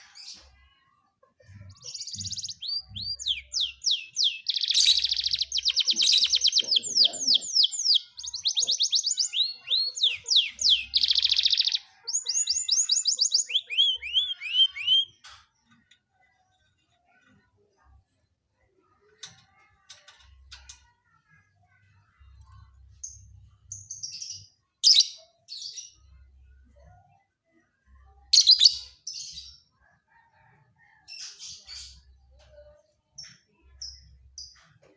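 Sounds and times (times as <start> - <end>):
canary singing: 1.5 - 16.0.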